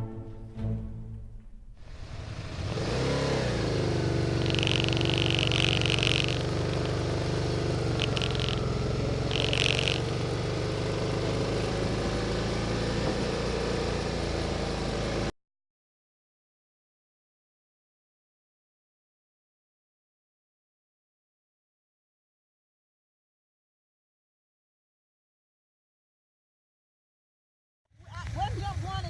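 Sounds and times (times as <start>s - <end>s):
vehicle engine running: 1.4s - 15.3s, 28.0s - 29.0s
road and wind noise: 1.8s - 15.3s
high-pitched squeals: 4.2s - 7.0s, 7.8s - 10.2s.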